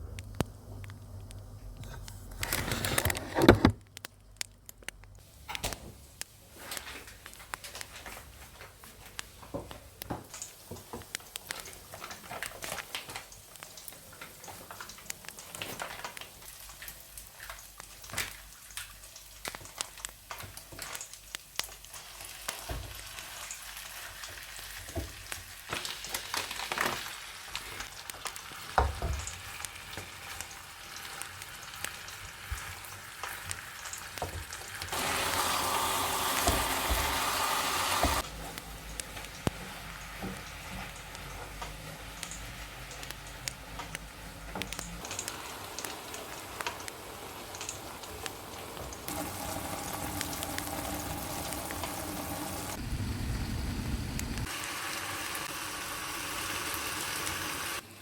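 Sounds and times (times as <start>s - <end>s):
food sizzling in a pan: 6.0s - 58.0s.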